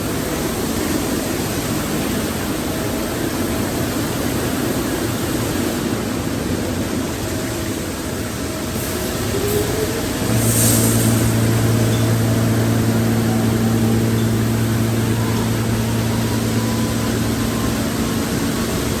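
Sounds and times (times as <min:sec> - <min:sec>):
car wash machinery rushing: 0:00.0 - 0:19.0
faint steady hums: 0:07.0 - 0:19.0.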